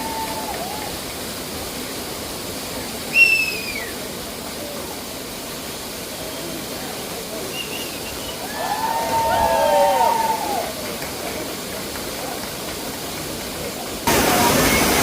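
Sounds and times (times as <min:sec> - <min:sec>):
waterfall rushing: 0:00.0 - 0:15.0
voices: 0:06.0 - 0:15.0.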